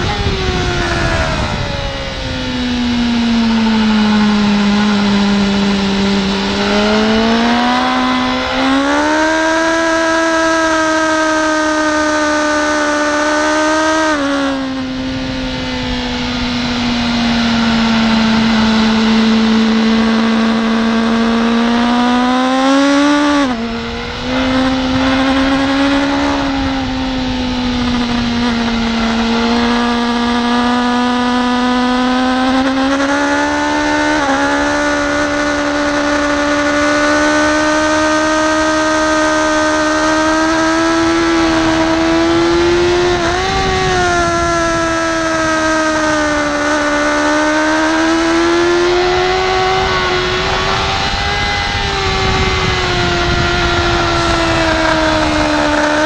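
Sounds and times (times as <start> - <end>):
wind rushing: 0.0 - 9.7, 14.2 - 30.6, 48.0 - 56.0
motorcycle engine at high revs: 0.0 - 56.0.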